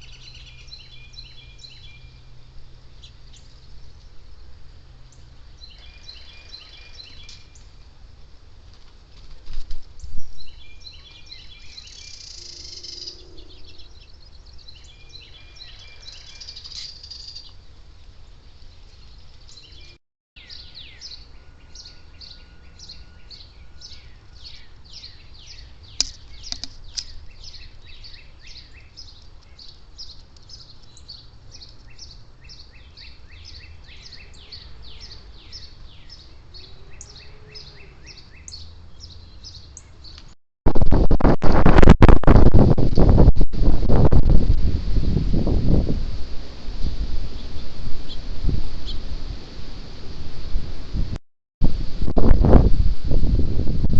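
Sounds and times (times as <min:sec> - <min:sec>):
high bird chirps: 0:10.1 - 0:17.6
harsh rasping bird calls: 0:10.9 - 0:17.6.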